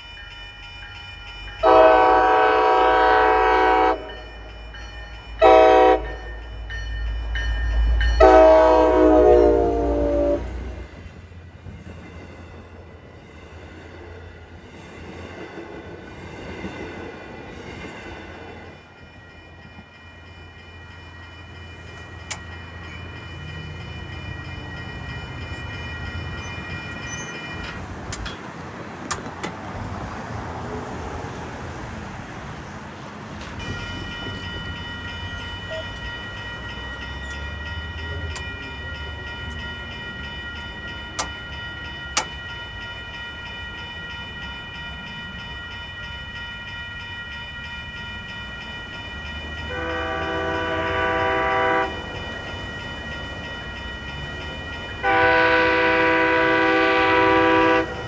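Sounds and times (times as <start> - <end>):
train engine rumble: 0.0 - 58.0
train horn chord: 1.6 - 4.3, 5.4 - 6.3, 8.2 - 10.9, 49.7 - 52.1, 55.0 - 58.0
high-pitched ringing: 33.6 - 58.0.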